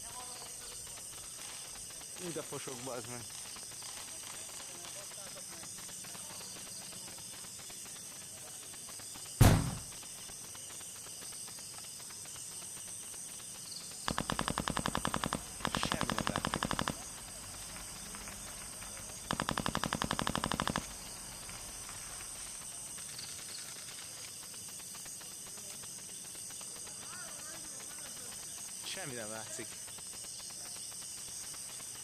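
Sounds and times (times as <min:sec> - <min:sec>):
loud bang: 0:09.4 - 0:10.0
rapid airsoft gunfire: 0:09.4 - 0:10.0, 0:14.1 - 0:24.2.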